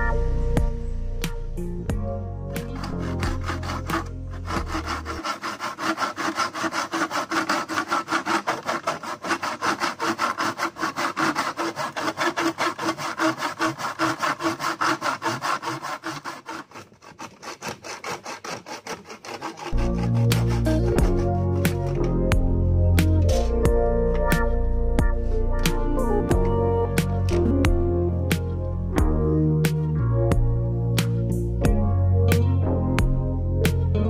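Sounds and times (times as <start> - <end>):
background music: 0.0 - 5.4, 19.8 - 34.0
saw cutting wood: 2.5 - 23.6.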